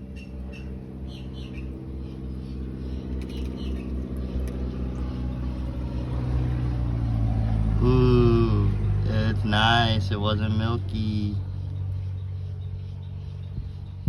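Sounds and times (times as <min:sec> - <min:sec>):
motor humming: 0:00.0 - 0:08.2
small birds chirping: 0:00.0 - 0:14.0.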